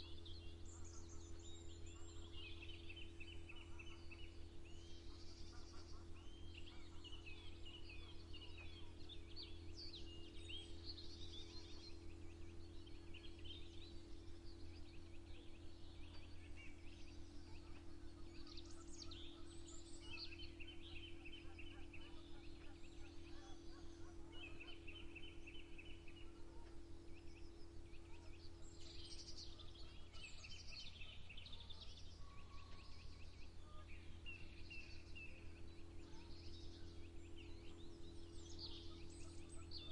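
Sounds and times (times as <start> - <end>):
birds chirping and trilling: 0.0 - 39.9
faint low hum: 0.0 - 39.9.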